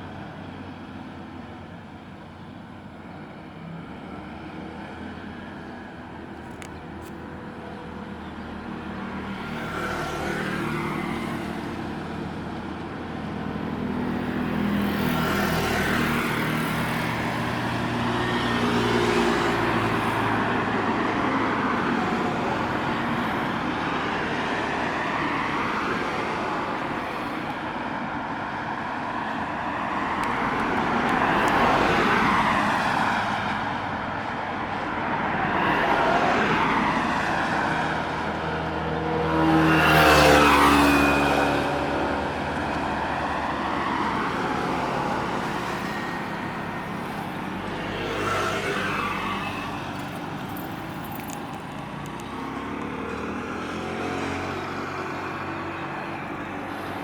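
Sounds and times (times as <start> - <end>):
vehicles passing: 0.0 - 57.0
low rumble of engines: 40.4 - 57.0.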